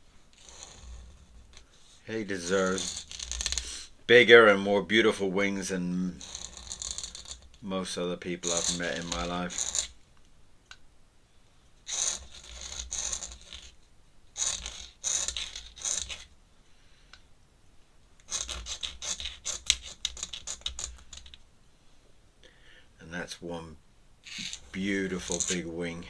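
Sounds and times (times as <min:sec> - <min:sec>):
pen scratching on paper: 0:00.3 - 0:04.0, 0:06.1 - 0:07.5, 0:08.4 - 0:10.0, 0:11.9 - 0:13.8, 0:14.4 - 0:16.3, 0:18.2 - 0:21.4, 0:24.3 - 0:25.8.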